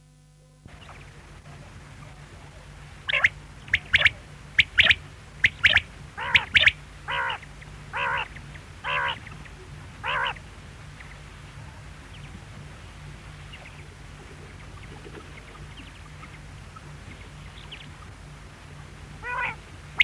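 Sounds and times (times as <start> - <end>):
quail calling: 3.1 - 9.4, 10.0 - 10.4, 19.2 - 20.0.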